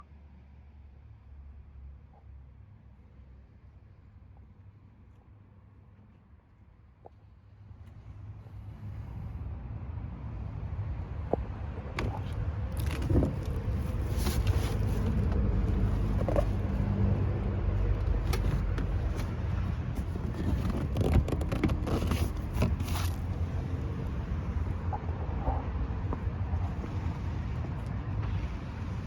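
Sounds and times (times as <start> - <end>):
low mechanical rumble: 5.8 - 29.0
clicks and rattles: 17.9 - 23.5.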